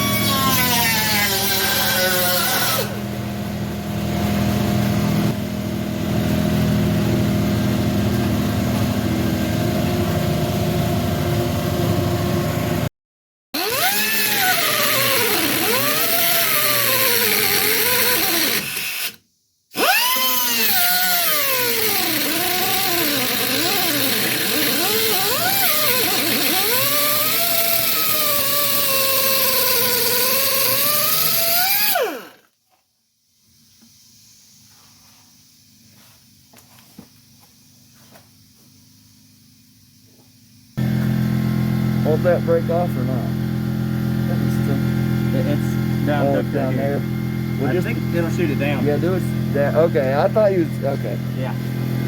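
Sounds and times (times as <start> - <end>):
cutoff wheel grinding metal: 0.0 - 3.1, 13.6 - 32.4.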